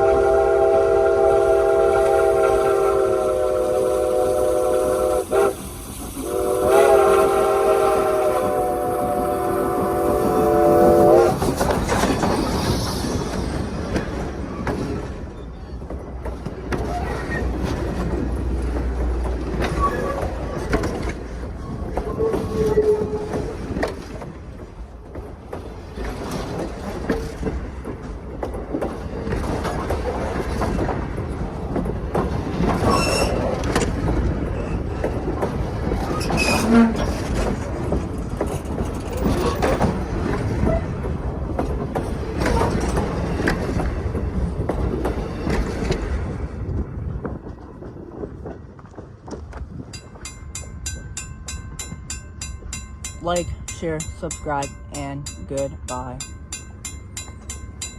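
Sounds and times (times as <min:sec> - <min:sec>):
train wheels on rails: 0:00.0 - 0:57.9
wheel squeals: 0:19.6 - 0:20.8, 0:21.6 - 0:23.6, 0:32.8 - 0:33.6, 0:36.0 - 0:37.2.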